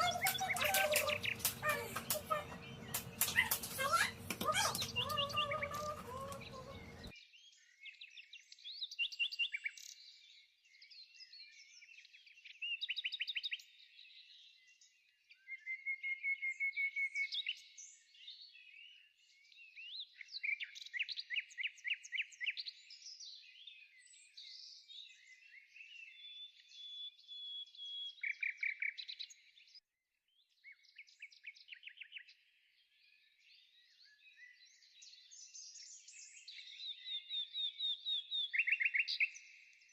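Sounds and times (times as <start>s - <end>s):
small birds singing: 0.0s - 29.8s, 30.4s - 39.9s.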